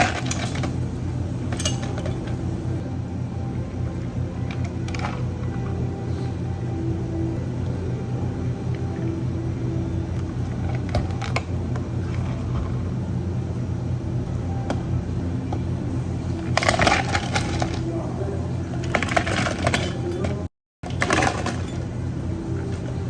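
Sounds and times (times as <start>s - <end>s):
clinking and rattling of items: 0.0s - 2.8s, 4.4s - 6.3s, 10.1s - 12.8s, 15.9s - 23.0s
cafe equipment humming: 0.0s - 23.0s.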